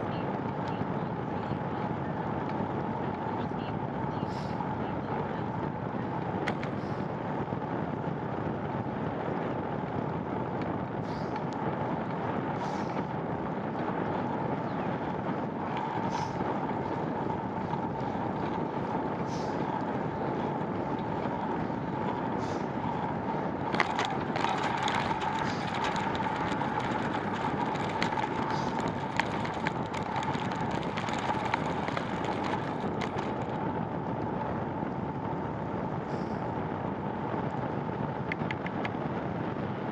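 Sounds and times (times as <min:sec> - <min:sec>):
constant hum: 0:00.0 - 0:39.9
tyre noise on wet road: 0:00.0 - 0:39.9
wind noise: 0:00.0 - 0:39.9
sharp clicks and ticks: 0:15.6 - 0:33.6, 0:38.2 - 0:39.0.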